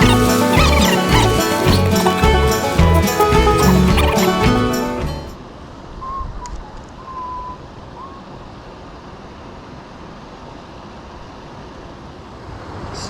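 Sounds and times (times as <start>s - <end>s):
creek water rushing: 0.0s - 5.3s
faint whistled notes: 6.0s - 8.3s.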